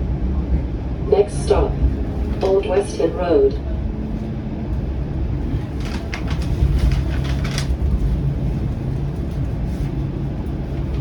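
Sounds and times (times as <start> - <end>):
streetcar low rumble: 0.0 - 11.0.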